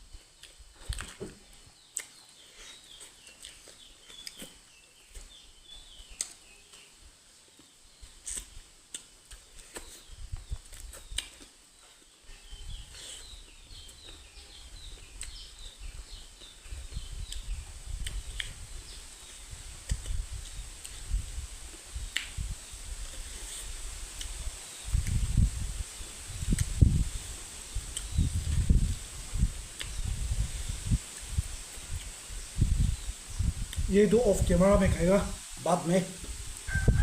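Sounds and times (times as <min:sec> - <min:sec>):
small birds chirping: 0:00.2 - 0:37.0
eating clicks and smacks: 0:01.9 - 0:02.2, 0:10.5 - 0:11.5.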